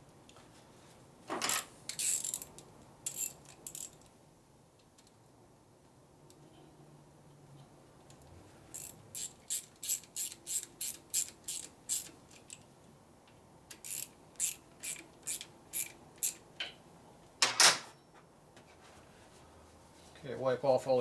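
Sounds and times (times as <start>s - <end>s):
hand ratchet clicking: 1.5s - 4.0s, 8.7s - 12.6s, 13.7s - 16.4s.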